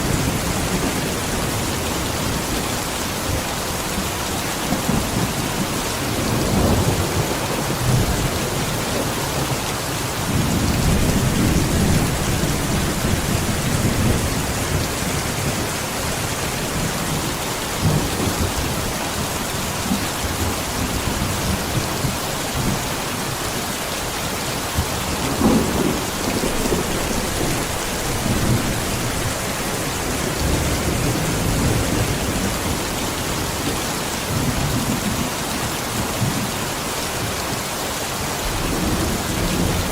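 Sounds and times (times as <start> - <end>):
heavy rain: 0.0 - 39.9
thunder rumbling: 4.6 - 23.6, 24.6 - 35.3.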